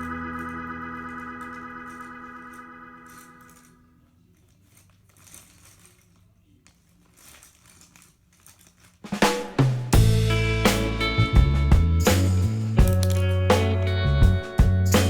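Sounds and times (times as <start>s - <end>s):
music with drums and bass: 9.1s - 15.0s.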